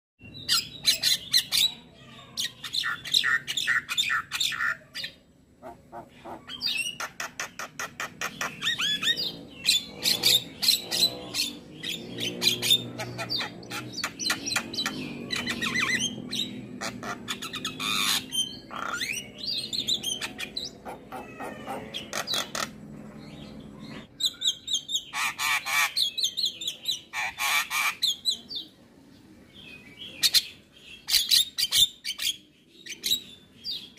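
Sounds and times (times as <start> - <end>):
myna singing and squawking: 0.4 - 22.8, 23.8 - 28.5.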